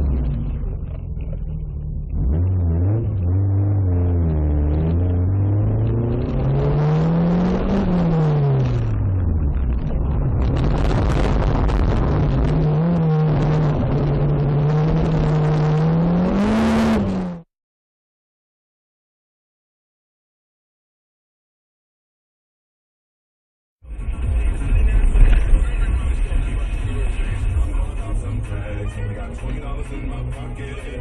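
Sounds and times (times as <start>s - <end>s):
car engine accelerating: 0.0s - 17.5s
road and tyre noise: 0.0s - 17.5s, 23.8s - 31.0s.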